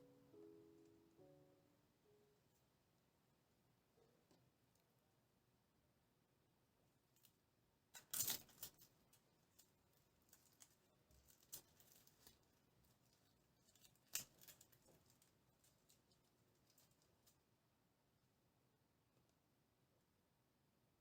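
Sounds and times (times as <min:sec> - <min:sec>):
crisp rustling and clicking: 0:07.1 - 0:17.5.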